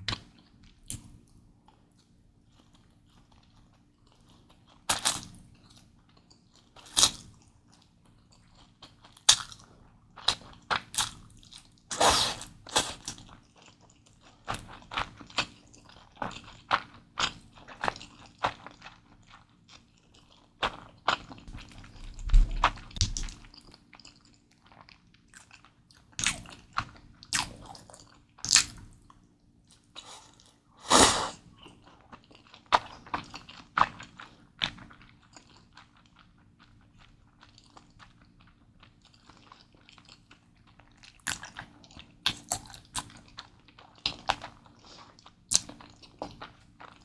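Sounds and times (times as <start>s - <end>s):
chewing noodles: 0.0s - 47.0s
deep thud: 22.1s - 23.2s.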